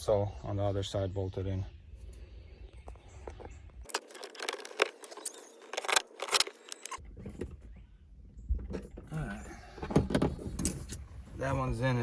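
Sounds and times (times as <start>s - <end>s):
tools and parts clicking and rattling: 3.2s - 7.6s, 9.9s - 11.1s.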